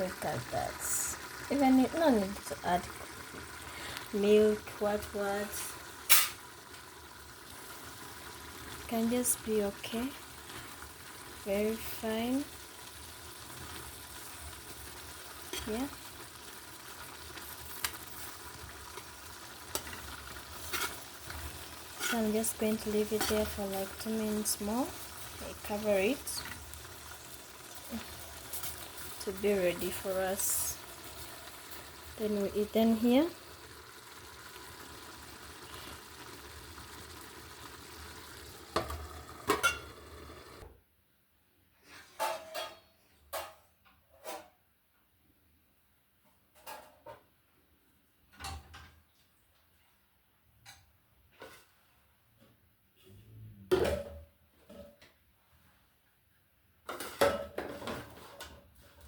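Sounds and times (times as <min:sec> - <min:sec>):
fish frying and sizzling: 0:00.0 - 0:40.7, 0:56.8 - 0:59.0.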